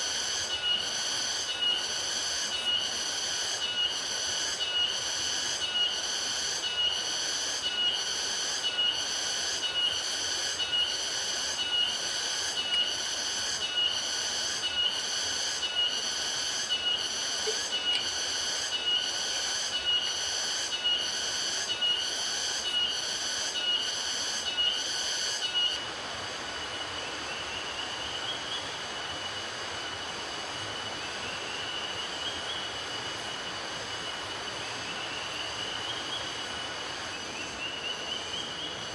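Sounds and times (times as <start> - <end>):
insects buzzing in pulses: 0.1 - 25.8.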